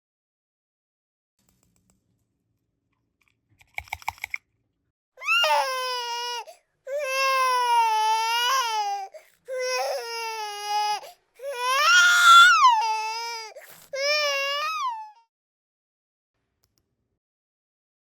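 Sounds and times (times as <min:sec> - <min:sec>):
baby-like wailing cries: 0:05.2 - 0:15.3.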